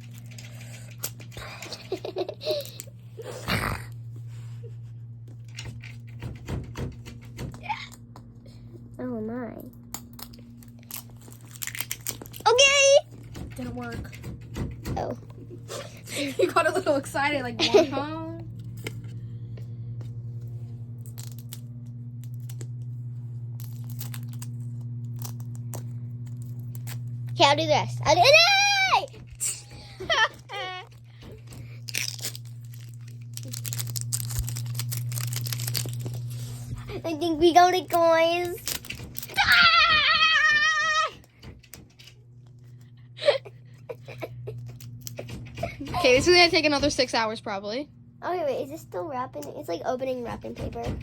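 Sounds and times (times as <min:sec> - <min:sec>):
steady low hum: 0:00.0 - 0:51.0
girls giggling: 0:01.4 - 0:03.4, 0:15.4 - 0:18.1, 0:29.4 - 0:30.9, 0:43.2 - 0:46.2
plastic wrapper rustling: 0:10.1 - 0:12.7, 0:23.6 - 0:27.3, 0:31.7 - 0:36.9, 0:37.9 - 0:39.4
clicks of plastic wrapper: 0:31.8 - 0:36.5.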